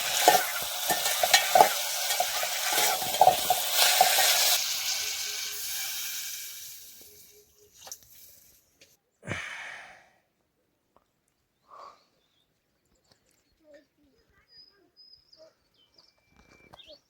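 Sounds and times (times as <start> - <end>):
utensil scraping a pan: 0.0 - 6.3
food sizzling in a pan: 0.0 - 8.6.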